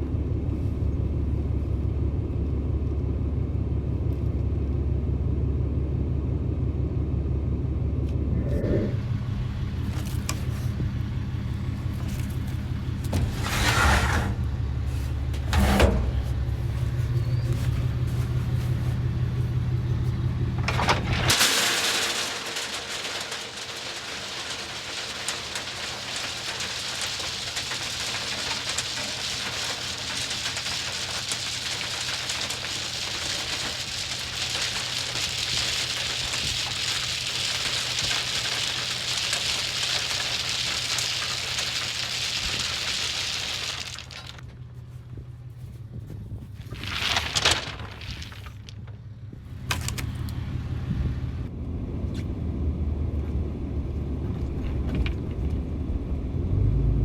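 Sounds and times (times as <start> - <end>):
truck engine running: 0.0 - 57.0
sleet falling and pattering: 20.6 - 44.4, 46.6 - 48.8.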